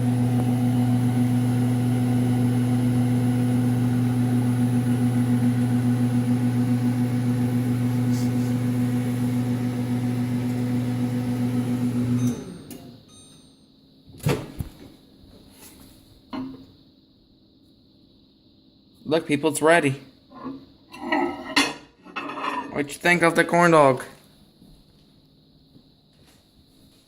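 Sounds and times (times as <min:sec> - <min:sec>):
microwave oven humming: 0:00.0 - 0:15.4.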